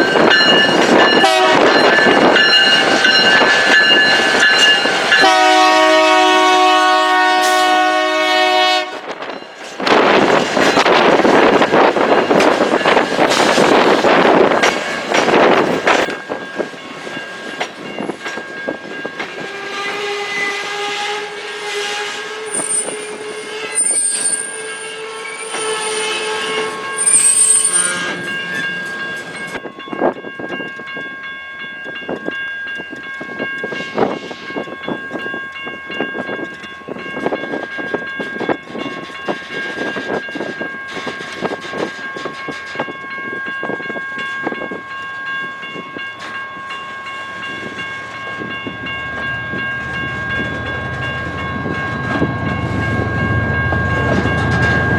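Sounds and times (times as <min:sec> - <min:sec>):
train horn blast: 0:01.2 - 0:01.8, 0:05.2 - 0:09.2, 0:19.4 - 0:28.2
train wheels clicking over joints: 0:09.0 - 0:20.0
high-pitched wheel ringing: 0:22.5 - 0:31.4.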